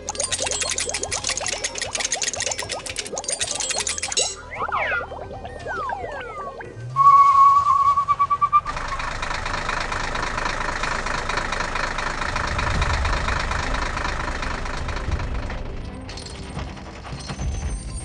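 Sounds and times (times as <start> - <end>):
warbling pulsing tone: 0.0 - 8.7
cartoon vehicle engine: 0.0 - 17.5.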